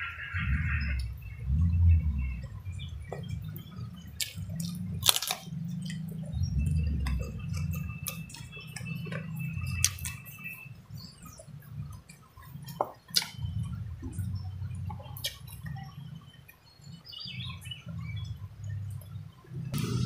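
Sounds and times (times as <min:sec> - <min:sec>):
chewing with wet mouth clicks: 0:02.4 - 0:16.6.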